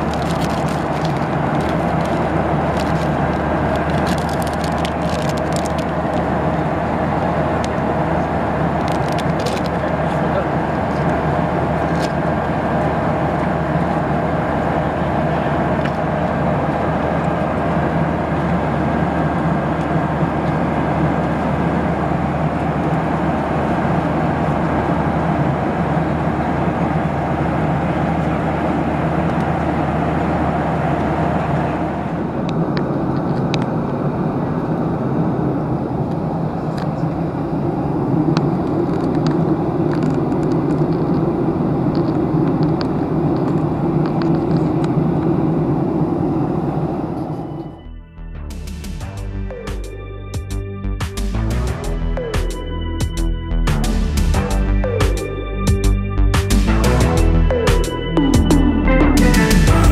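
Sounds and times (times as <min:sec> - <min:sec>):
vehicle engine and air rumble: 0:00.0 - 0:59.9.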